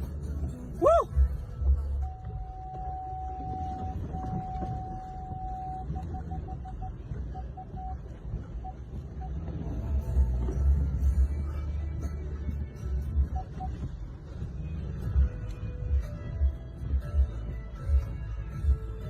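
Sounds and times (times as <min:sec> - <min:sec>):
low rumble: 0:00.0 - 0:19.0
car warning beeper: 0:00.8 - 0:11.7, 0:13.0 - 0:15.4.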